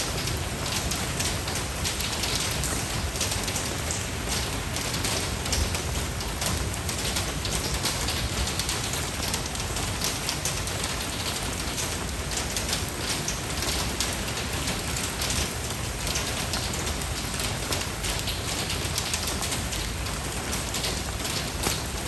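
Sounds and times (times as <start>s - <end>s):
rain pattering on surfaces: 0.0s - 22.0s.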